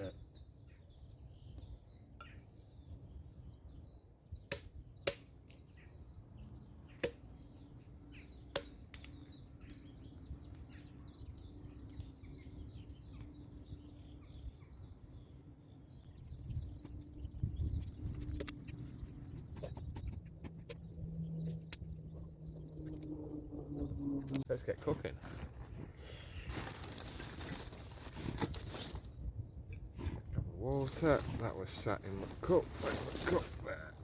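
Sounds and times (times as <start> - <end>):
birds chirping: 0.0 - 34.0
dry sticks snapping: 4.5 - 5.7, 6.9 - 7.6, 8.4 - 12.4, 18.2 - 18.8.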